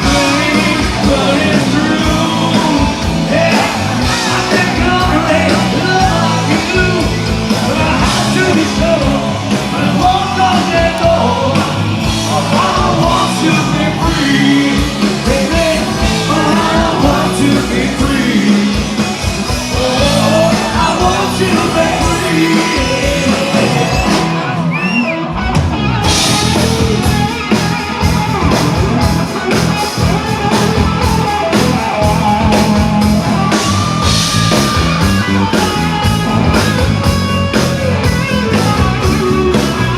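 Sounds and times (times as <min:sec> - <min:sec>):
person singing and shouting: 0:00.0 - 0:19.0, 0:19.6 - 0:25.1
rock band playing live: 0:00.0 - 0:39.9.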